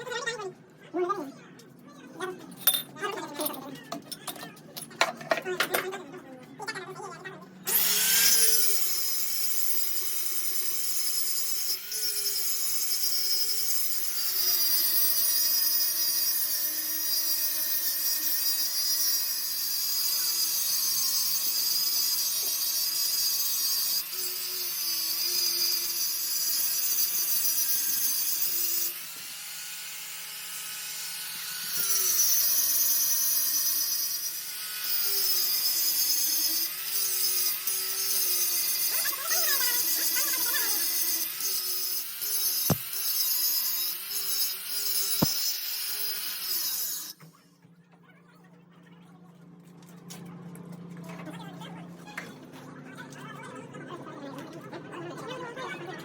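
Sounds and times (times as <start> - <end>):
power tool motor running: 7.7 - 47.2.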